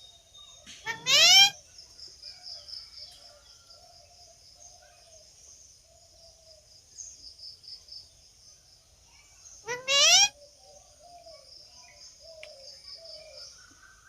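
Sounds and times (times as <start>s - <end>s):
bird chirps: 9.6s - 10.4s.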